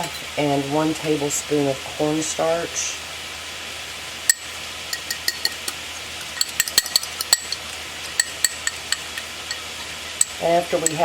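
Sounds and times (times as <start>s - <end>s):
vegetables sizzling in a pan: 0.0s - 11.0s
spoon clinking against a bowl: 4.3s - 5.7s, 6.4s - 11.0s.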